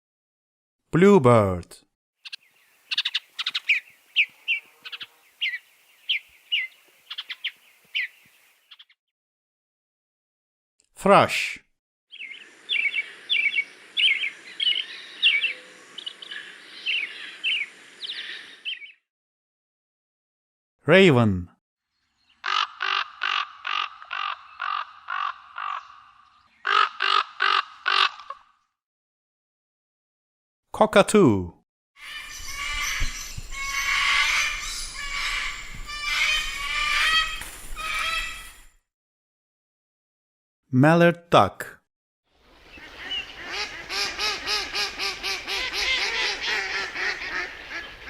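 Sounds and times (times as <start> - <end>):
cockatoo screeching: 32.0 - 38.7.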